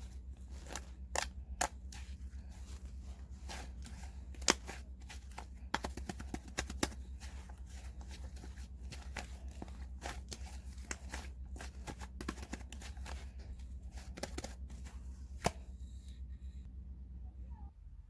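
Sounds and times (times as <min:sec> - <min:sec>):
hands handling crinkly material: 0:00.0 - 0:16.3
steady low hum: 0:00.0 - 0:18.0
crisp clicks and taps: 0:03.5 - 0:15.6.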